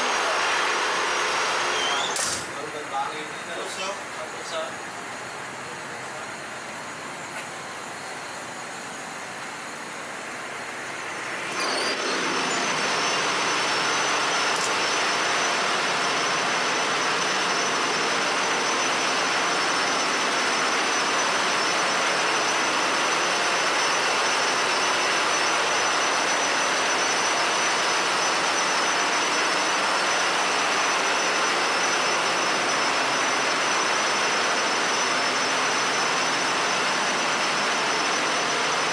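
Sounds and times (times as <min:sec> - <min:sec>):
steady high whine: 0:00.0 - 0:24.3
engine-room machinery noise: 0:00.0 - 0:38.9.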